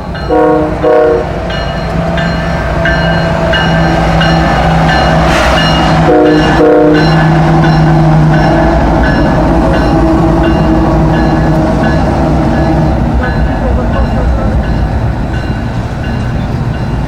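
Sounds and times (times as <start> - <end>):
train passing on rails: 0.0 - 17.0
locomotive horn blasts: 0.3 - 1.4, 6.0 - 7.2.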